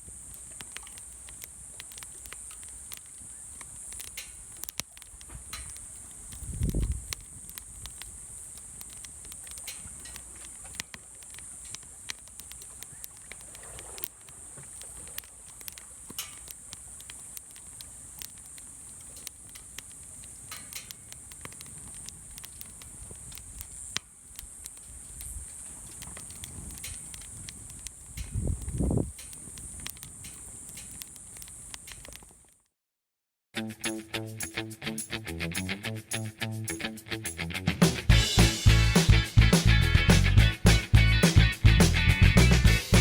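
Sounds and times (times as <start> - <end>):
high-pitched fire hiss: 0.0 - 32.4, 33.8 - 43.0
wood fire crackling and popping: 0.0 - 32.7, 37.8 - 43.0.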